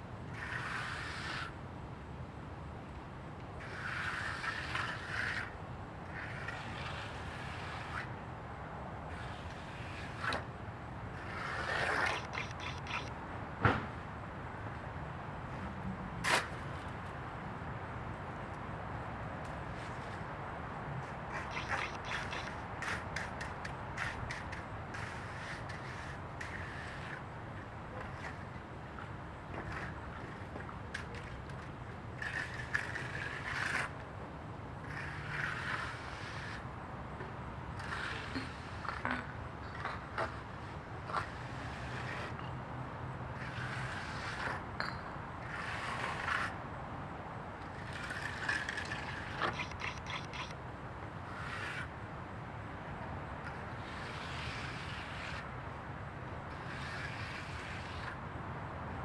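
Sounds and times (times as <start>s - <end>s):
scraping and rustling strokes: 11.1s - 13.1s, 21.0s - 27.3s, 27.9s - 34.0s, 47.7s - 50.6s
rapid ticks: 11.4s - 13.1s, 21.3s - 27.2s, 48.0s - 50.6s.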